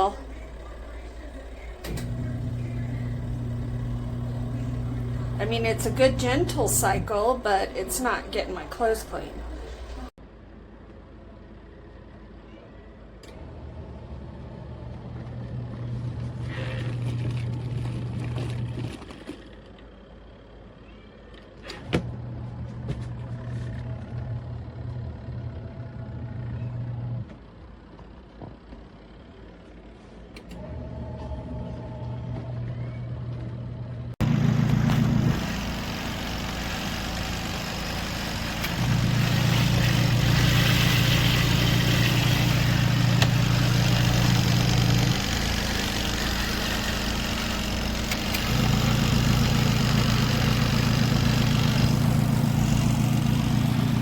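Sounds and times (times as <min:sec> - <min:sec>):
washing machine motor running: 0:00.0 - 0:10.1, 0:13.6 - 0:20.4, 0:30.6 - 0:54.0.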